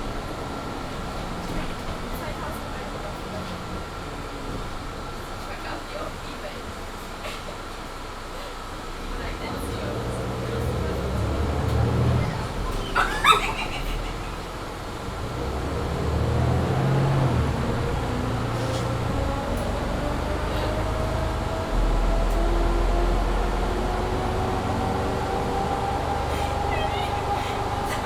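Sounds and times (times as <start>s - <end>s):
bus accelerating with rising whine: 0.0s - 28.0s
deep engine drone: 9.0s - 28.0s.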